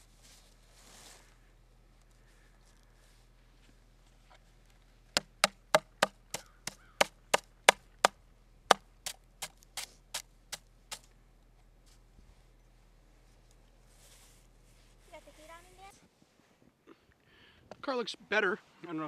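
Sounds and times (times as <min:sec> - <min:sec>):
hand tool chopping ice: 0:05.4 - 0:06.4.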